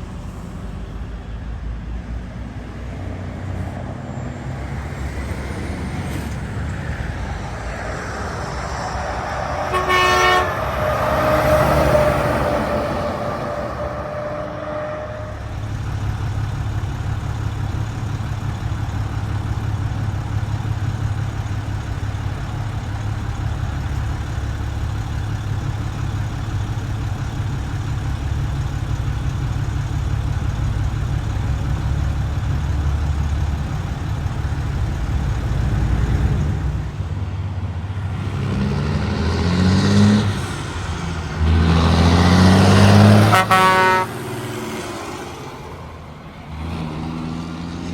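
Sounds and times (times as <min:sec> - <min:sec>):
truck accelerating past: 0:00.0 - 0:47.9
truck diesel engines running: 0:00.0 - 0:47.9
horn tone: 0:07.6 - 0:15.6, 0:42.8 - 0:44.4.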